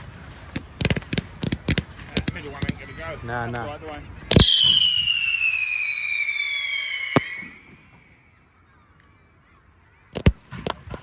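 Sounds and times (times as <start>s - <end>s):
sharp crack: 0.3s - 2.9s, 4.3s - 8.1s, 10.2s - 11.0s
firework whistle falling in pitch: 4.3s - 8.2s.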